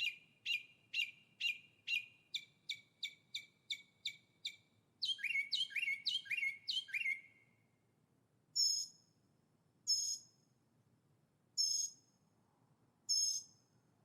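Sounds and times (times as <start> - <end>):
songbirds singing: 0.0 - 7.6, 11.6 - 12.1.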